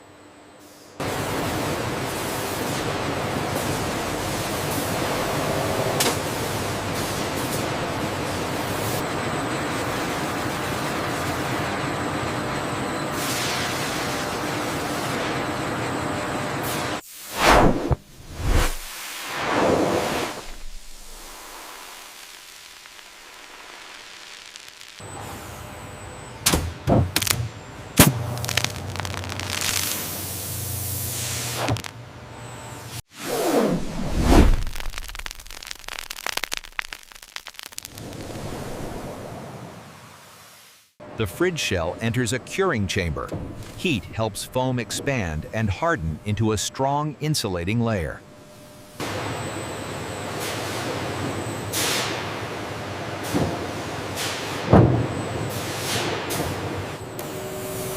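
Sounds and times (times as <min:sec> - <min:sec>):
factory machinery hiss: 0:13.1 - 0:15.3, 0:51.7 - 0:52.5
steady hiss: 0:18.0 - 0:25.0, 0:34.3 - 0:41.0.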